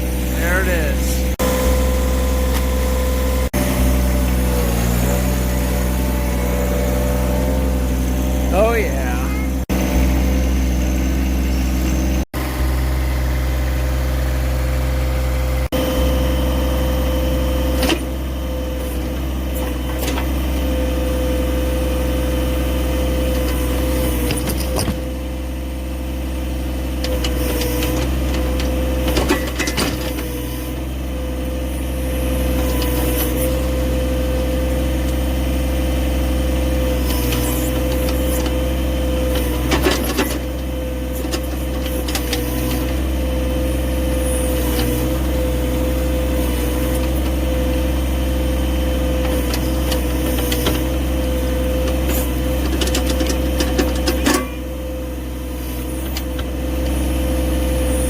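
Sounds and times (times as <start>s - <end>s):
hydraulic whine: 0.0s - 58.0s
tractor diesel engine running: 0.0s - 58.0s
backhoe knocks and scrapes: 23.4s - 25.1s, 27.1s - 30.7s, 39.3s - 43.0s, 49.2s - 51.0s, 51.8s - 54.7s.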